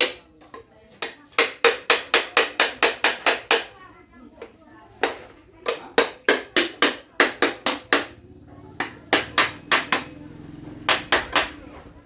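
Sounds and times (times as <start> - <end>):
hammer strikes: 0.0 - 0.2, 1.0 - 3.7, 5.0 - 8.2, 8.8 - 10.2, 10.8 - 11.6.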